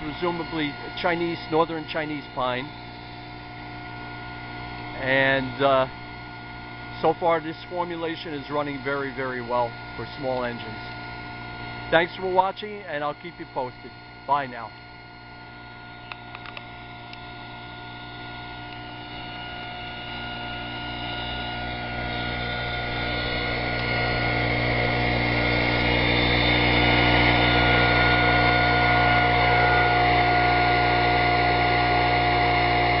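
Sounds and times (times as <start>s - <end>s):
leaf blower engine running: 0.0s - 6.0s, 16.0s - 33.0s.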